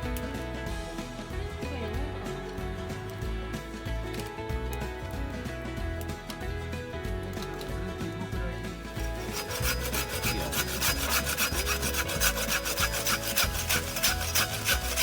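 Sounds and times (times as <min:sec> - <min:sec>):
hand saw cutting wood: 0:08.9 - 0:15.0.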